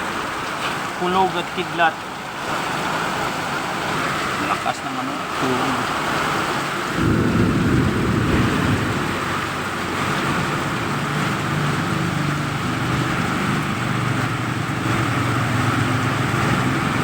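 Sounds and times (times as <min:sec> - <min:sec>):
heavy rain pouring: 0:00.0 - 0:17.0
strong wind: 0:06.8 - 0:15.2
low thunder rumble: 0:06.9 - 0:13.6.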